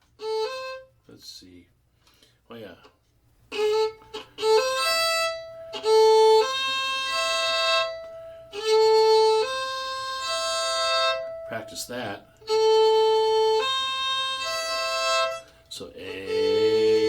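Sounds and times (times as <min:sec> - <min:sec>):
fiddle playing double stops: 0:00.0 - 0:01.4, 0:03.5 - 0:17.0.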